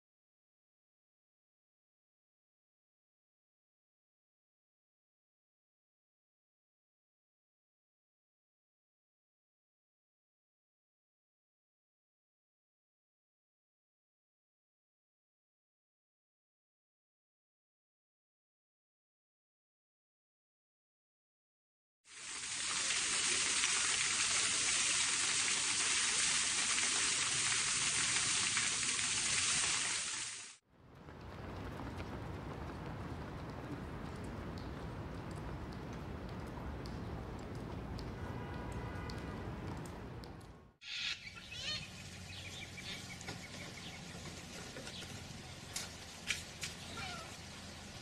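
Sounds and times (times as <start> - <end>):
waterfall over rock: 22.1 - 30.6
cockatoos squawking and screeching: 40.8 - 43.0.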